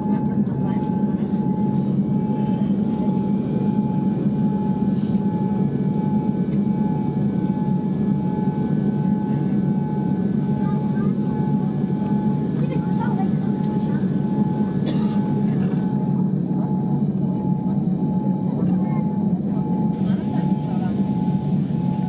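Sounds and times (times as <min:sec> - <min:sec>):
airliner cabin rumble and whine: 0:00.0 - 0:22.0.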